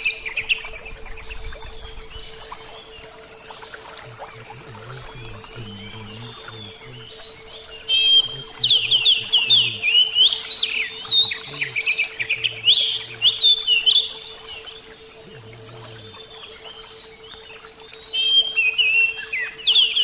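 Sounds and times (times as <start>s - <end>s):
faint low hum: 0.0s - 20.0s
bird singing whistles and chirps: 4.3s - 20.0s.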